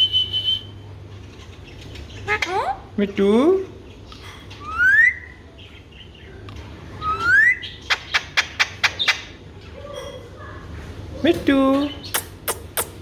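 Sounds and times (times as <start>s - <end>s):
parakeet sharp clicks: 12.1s - 13.0s.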